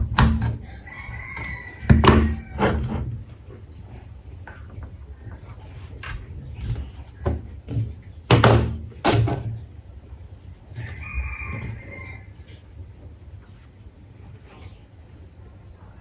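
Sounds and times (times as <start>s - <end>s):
knocks and clunks of parts: 0.0s - 0.6s, 1.4s - 3.2s, 6.0s - 9.7s.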